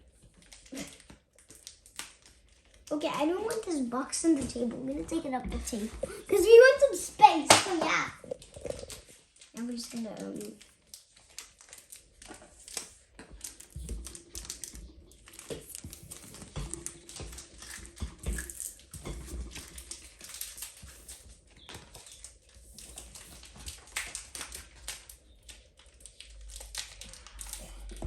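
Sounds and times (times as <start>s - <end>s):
cardboard rustling: 8.1s - 25.1s.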